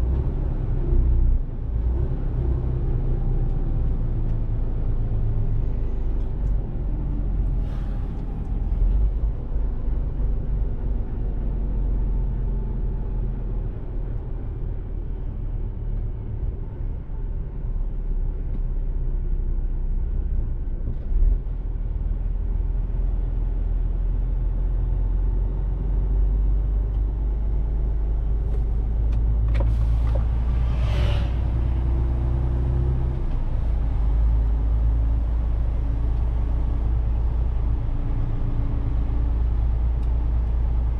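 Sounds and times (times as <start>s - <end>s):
truck engine and road rumble: 0.0s - 40.9s.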